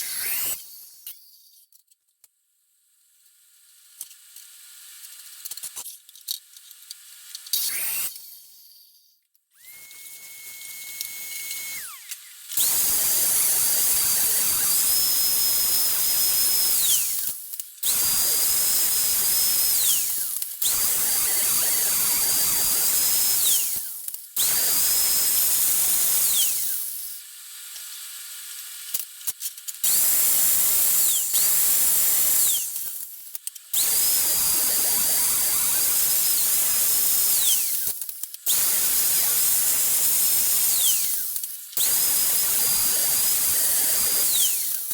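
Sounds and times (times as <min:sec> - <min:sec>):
power tool whining: 0:00.0 - 0:01.4, 0:07.6 - 0:08.8, 0:09.6 - 0:27.0, 0:29.8 - 0:33.0, 0:33.7 - 0:44.9.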